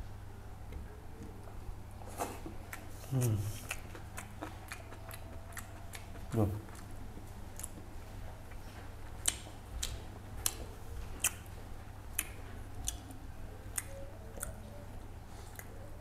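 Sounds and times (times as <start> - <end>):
close-miked chewing: 0.8 - 16.0
wet mouth clicks and smacks: 9.2 - 10.6, 12.1 - 13.1.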